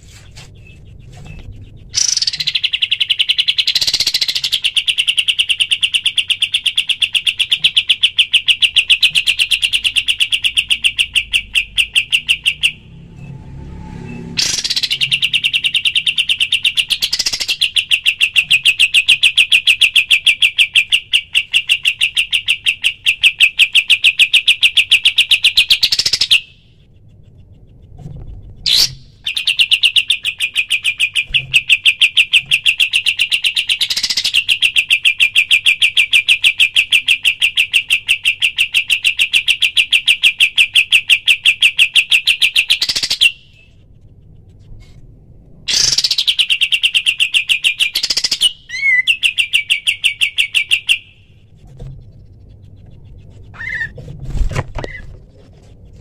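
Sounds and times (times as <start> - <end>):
songbird rapid trills: 1.8 - 12.8.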